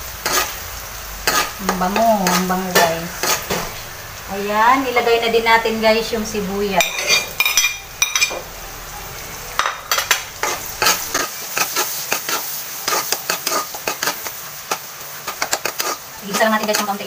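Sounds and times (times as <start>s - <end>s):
food sizzling in a wok: 0.0s - 17.0s
metal utensil scraping a pan: 0.2s - 0.6s, 1.2s - 3.8s, 6.8s - 8.4s, 9.6s - 17.0s.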